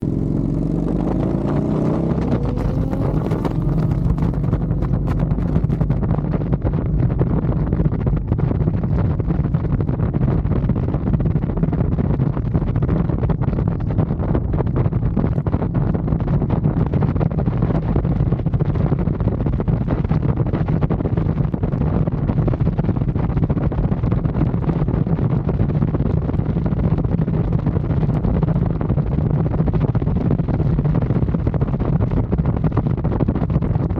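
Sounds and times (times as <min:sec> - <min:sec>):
motorcycle engine: 0:00.0 - 0:07.2
wind rushing over microphone: 0:00.0 - 0:33.9.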